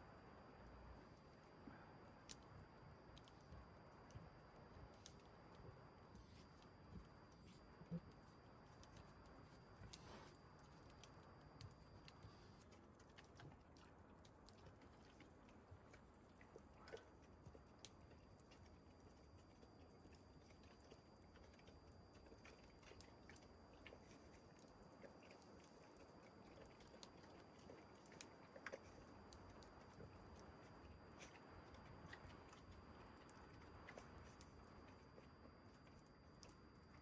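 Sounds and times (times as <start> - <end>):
faint small clicks: 2.2 - 35.0.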